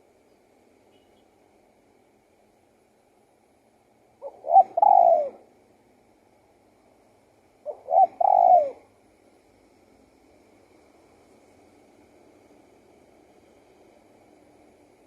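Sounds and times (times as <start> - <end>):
dove cooing: 4.2 - 5.5, 7.6 - 8.9.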